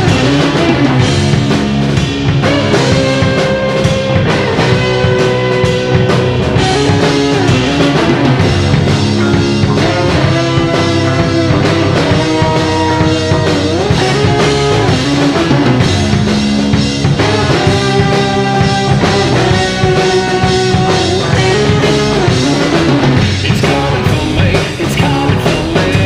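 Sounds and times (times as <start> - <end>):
distorted electric guitar: 0.0 - 26.0
drum kit beat: 0.0 - 26.0.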